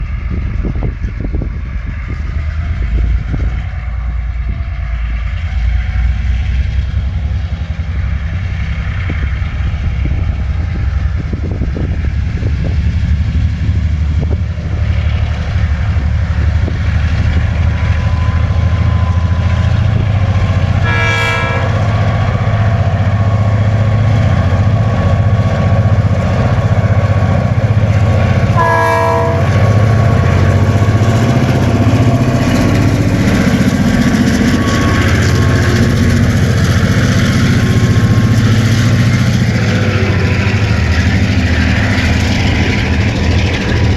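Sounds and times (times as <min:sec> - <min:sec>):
train rumbling past: 0:00.0 - 0:43.9
locomotive horn blast: 0:20.8 - 0:22.1, 0:28.6 - 0:29.9, 0:34.4 - 0:35.8.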